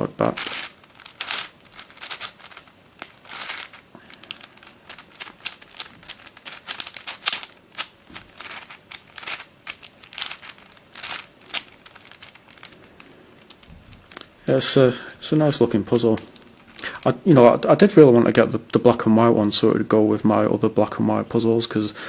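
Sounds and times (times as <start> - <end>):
plastic puzzle clicking and scraping: 0.0 - 14.4, 15.3 - 19.0.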